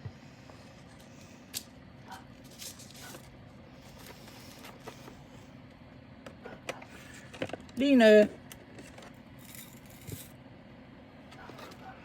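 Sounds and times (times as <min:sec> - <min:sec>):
low background hum: 0:00.0 - 0:12.0
small objects rustling and clicking: 0:02.4 - 0:03.3.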